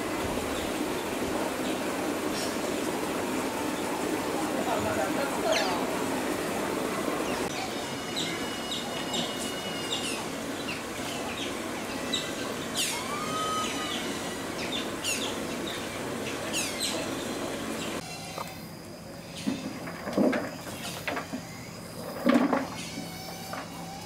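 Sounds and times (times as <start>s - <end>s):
birds calling: 0.0s - 18.6s
steady background hiss: 0.0s - 24.0s.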